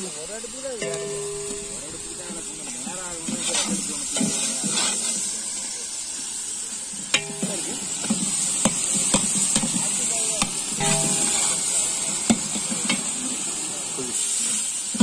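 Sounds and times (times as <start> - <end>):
onions sizzling in hot oil: 0.0 - 15.0
metal ladle scraping and knocking pot: 10.8 - 11.6.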